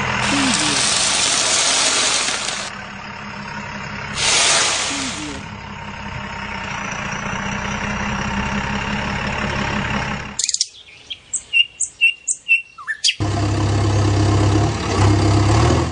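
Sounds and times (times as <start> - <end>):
tractor engine running: 0.0 - 12.4, 13.1 - 15.9
birds chirping: 10.4 - 13.2.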